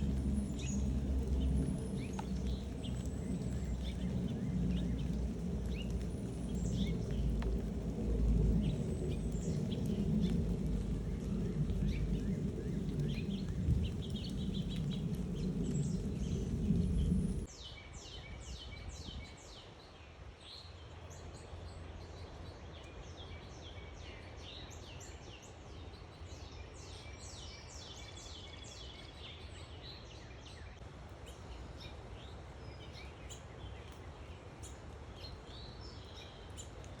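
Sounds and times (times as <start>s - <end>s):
loud low rumble: 0.0s - 17.5s
small birds chirping: 0.0s - 17.8s.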